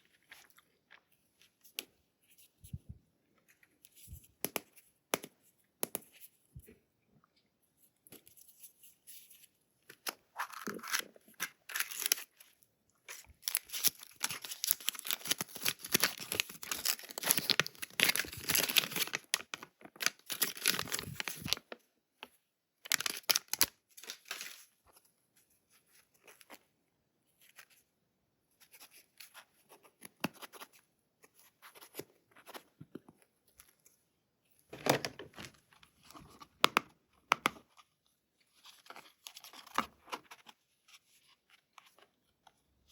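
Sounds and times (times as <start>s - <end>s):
packaging tearing and crinkling: 10.4s - 12.4s, 13.4s - 21.6s, 22.9s - 24.5s.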